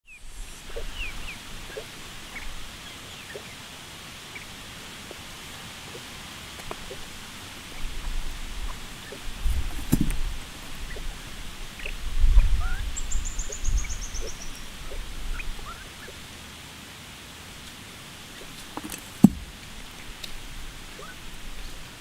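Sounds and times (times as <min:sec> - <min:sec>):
bird chirps: 0:00.0 - 0:03.7, 0:11.8 - 0:16.2, 0:20.9 - 0:21.9
faint steady hiss: 0:00.0 - 0:22.0.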